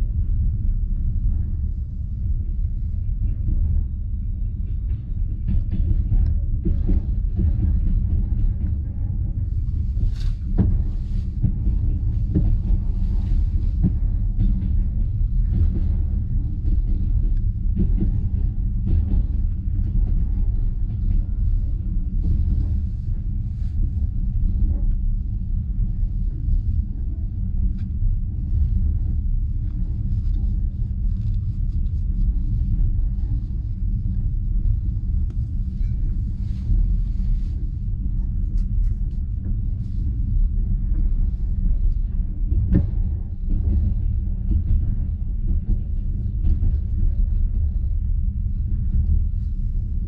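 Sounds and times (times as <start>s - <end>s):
train carriage rumble: 0.0s - 50.0s.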